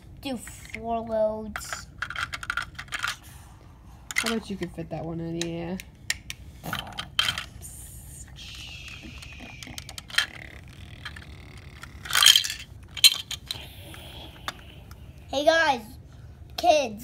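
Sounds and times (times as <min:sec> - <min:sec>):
plastic toy pieces clattering: 0:01.6 - 0:03.2, 0:06.7 - 0:07.5, 0:09.8 - 0:13.6.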